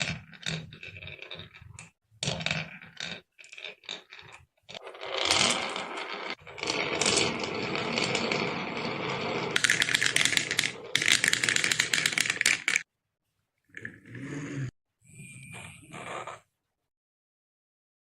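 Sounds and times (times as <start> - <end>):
marbles rolling down wooden run: 0.0 - 12.9.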